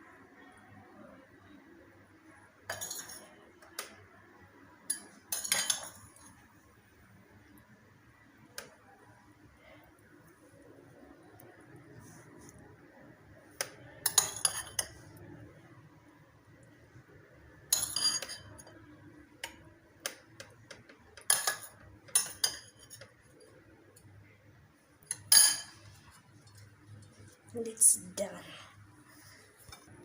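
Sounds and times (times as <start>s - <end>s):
utensils and dishes clinking: 2.7s - 3.4s, 4.9s - 6.3s, 14.0s - 15.1s, 17.7s - 18.8s, 21.2s - 23.5s, 25.1s - 26.6s.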